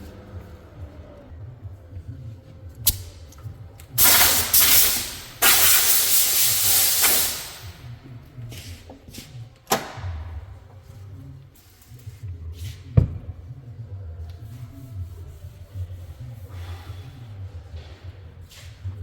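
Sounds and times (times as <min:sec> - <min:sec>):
sharp click: 0:02.9 - 0:03.2
air hissing from nozzle: 0:04.0 - 0:07.8.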